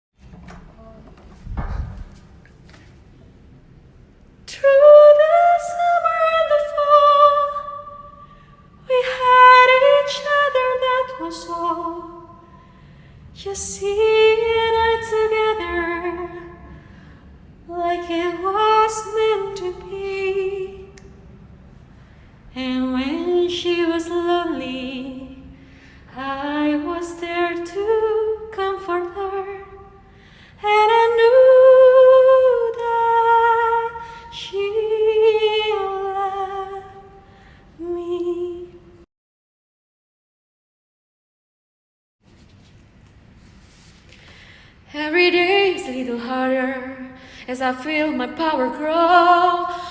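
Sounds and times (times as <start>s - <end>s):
woman singing unaccompanied: 4.5s - 8.2s, 8.9s - 12.4s, 13.4s - 16.6s, 17.7s - 21.0s, 37.8s - 39.0s, 44.9s - 49.9s.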